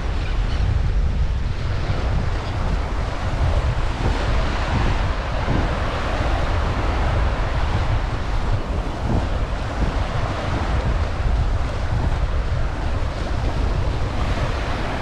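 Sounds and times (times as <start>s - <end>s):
ocean surf washing on beach: 0.0s - 15.0s
wind buffeting microphone: 0.0s - 15.0s.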